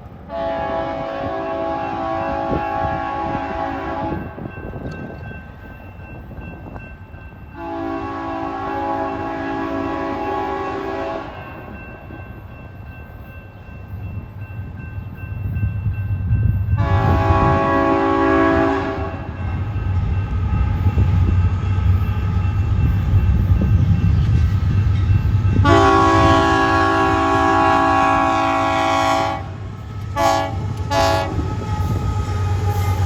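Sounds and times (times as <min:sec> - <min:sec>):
train rumble: 0:00.0 - 0:33.0
locomotive air horn blasts: 0:00.3 - 0:04.4, 0:07.6 - 0:11.4, 0:16.8 - 0:19.4, 0:25.6 - 0:33.0.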